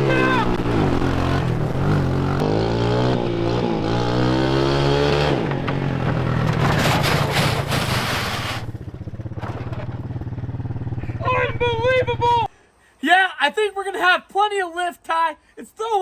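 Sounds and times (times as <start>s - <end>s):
three-wheeler engine revving: 0.0s - 11.6s.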